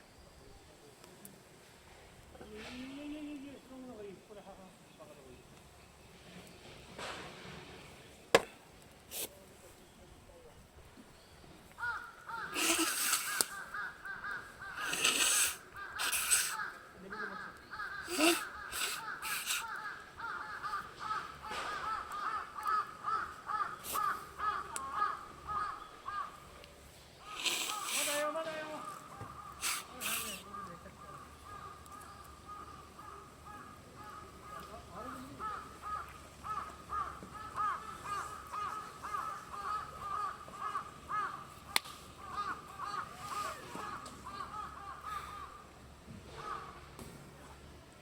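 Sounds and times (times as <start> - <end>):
birds calling: 7.7 - 47.0
sharp crack: 12.6 - 13.7, 41.7 - 42.0
sharp snap: 41.7 - 42.0.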